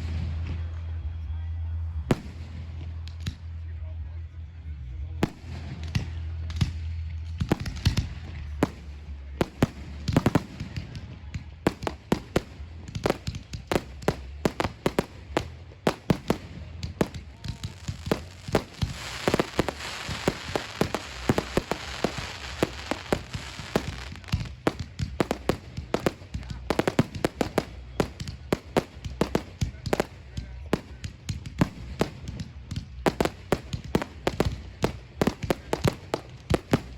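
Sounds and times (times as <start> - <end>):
fireworks bangs and pops: 0.0 - 1.0, 2.1 - 3.6, 5.2 - 36.9
dense crackling hiss: 11.7 - 36.9.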